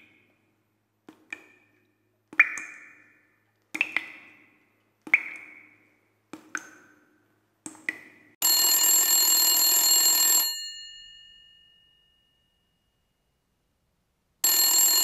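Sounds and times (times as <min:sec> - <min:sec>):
telephone bell ringing: 0:08.4 - 0:12.4, 0:14.4 - 0:15.0.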